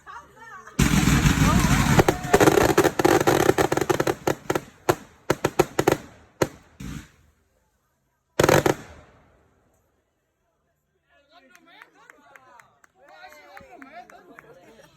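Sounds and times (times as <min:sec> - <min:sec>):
loud firework burst: 0:00.8 - 0:07.3, 0:08.4 - 0:09.4
firework bangs and crackling: 0:00.8 - 0:07.4, 0:08.4 - 0:09.4.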